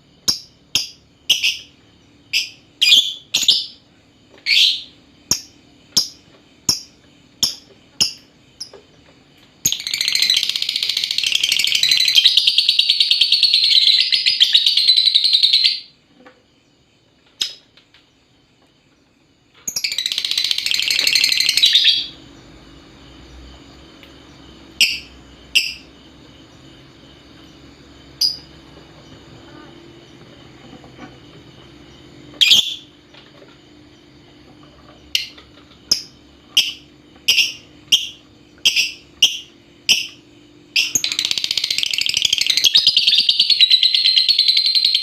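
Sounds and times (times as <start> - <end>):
lovebird chirping: 0.2 - 3.8, 4.4 - 8.8, 9.6 - 16.0, 19.6 - 23.6, 24.2 - 30.7, 31.8 - 33.0, 35.0 - 45.0
lovebird rattling chatter calls: 9.6 - 15.9, 19.7 - 22.2.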